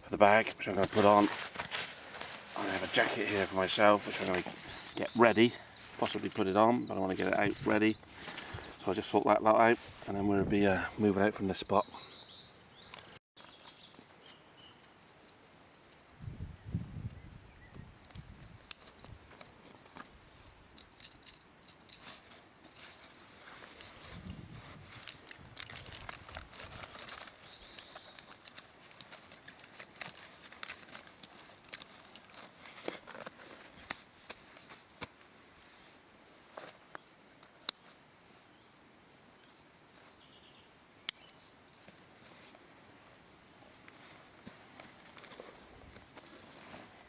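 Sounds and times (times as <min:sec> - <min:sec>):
waterproof fabric rustling: 0:00.4 - 0:06.4.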